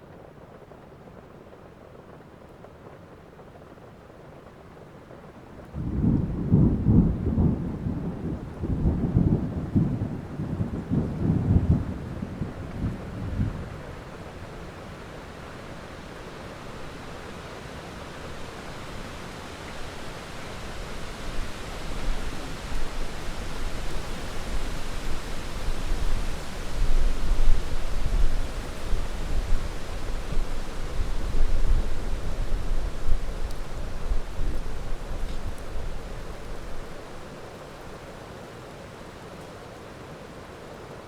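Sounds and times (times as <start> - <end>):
rain hiss: 0.0 - 41.0
thunder rumbling: 5.7 - 14.4.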